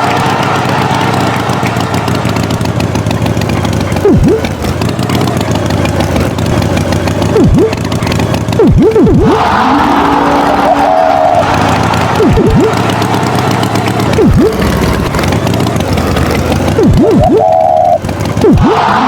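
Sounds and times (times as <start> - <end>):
tractor engine running: 0.0 - 19.0
quick swoops dipping in pitch: 4.0 - 4.5, 7.3 - 7.8, 8.5 - 13.0, 13.9 - 14.8, 16.8 - 19.0.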